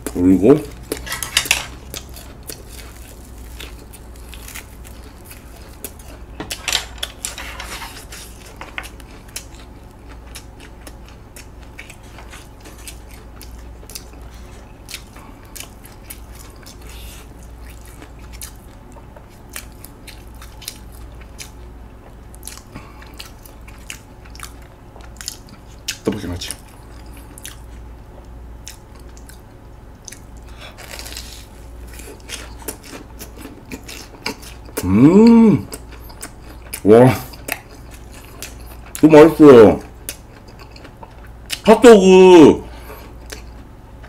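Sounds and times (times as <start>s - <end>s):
person chewing crunchy food: 0.0s - 41.7s, 42.7s - 44.0s.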